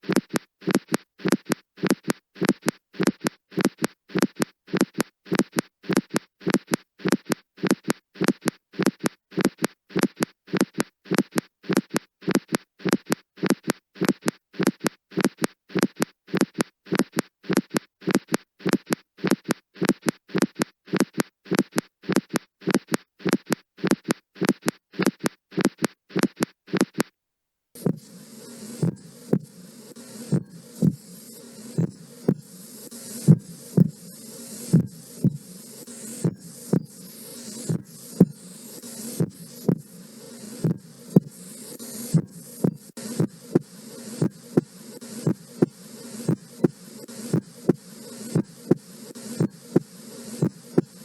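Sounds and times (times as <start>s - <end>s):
heartbeat: 27.8s - 51.0s.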